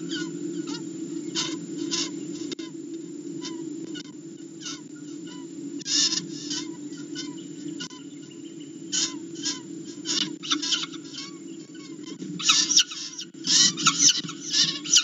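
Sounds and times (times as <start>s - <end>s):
steady low hum: 0.0s - 15.0s
shrill bird screams: 9.0s - 15.0s.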